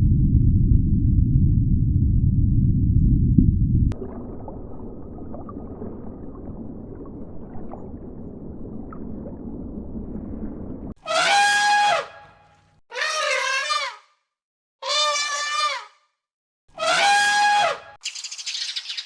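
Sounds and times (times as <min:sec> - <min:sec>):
low rumbling background noise: 0:00.0 - 0:11.0.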